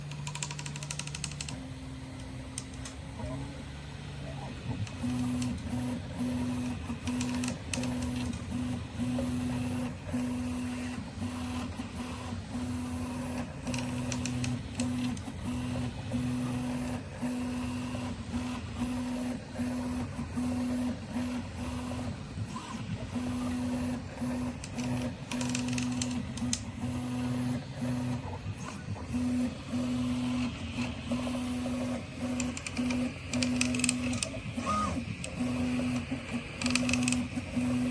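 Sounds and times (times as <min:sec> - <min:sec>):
stepper motors whining: 0:21.6 - 0:37.9.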